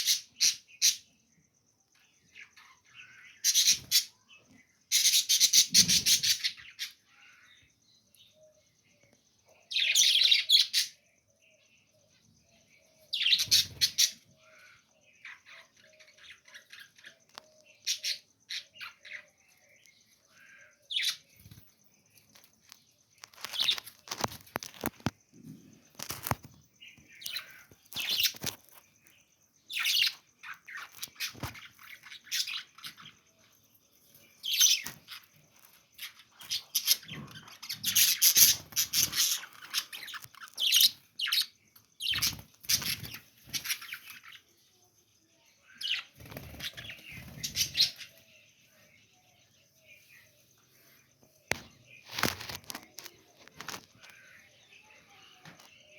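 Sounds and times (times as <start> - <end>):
budgerigars chirping: 0.0 - 1.1, 2.4 - 4.2, 4.9 - 7.4, 13.1 - 19.3, 36.0 - 44.4, 45.8 - 48.4
wings fluttering: 22.3 - 25.2, 25.8 - 26.6, 27.2 - 28.9, 30.8 - 32.1, 42.1 - 44.0, 46.2 - 48.1, 51.5 - 54.2.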